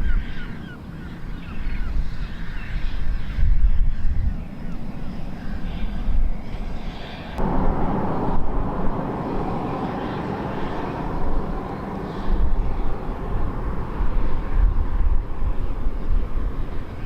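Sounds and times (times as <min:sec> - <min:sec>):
steam train running: 0:07.4 - 0:17.0.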